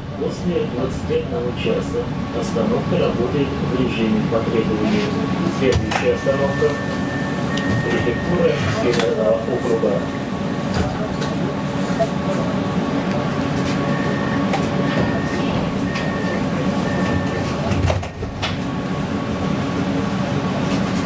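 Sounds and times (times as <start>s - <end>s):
tram wheels rumbling: 0.0s - 21.0s
short electronic beeps: 6.2s - 8.6s, 13.8s - 17.4s.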